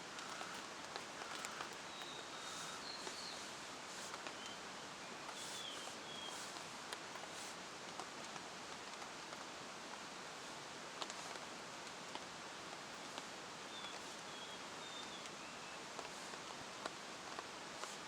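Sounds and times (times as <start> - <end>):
steady rain falling: 0.0 - 18.0
faint high bird chirps: 1.4 - 3.5, 4.3 - 6.5, 13.7 - 15.8.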